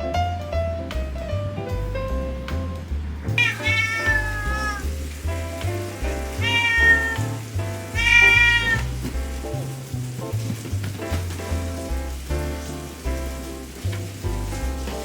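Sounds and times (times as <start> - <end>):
background music with piano and bass: 0.0 - 15.0
cat meowing: 3.4 - 4.9, 6.2 - 9.1.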